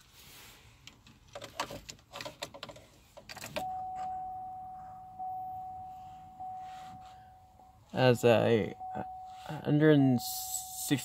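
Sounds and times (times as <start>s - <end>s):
car keys jangling: 1.2s - 5.4s
electronic warning chime: 3.6s - 11.0s.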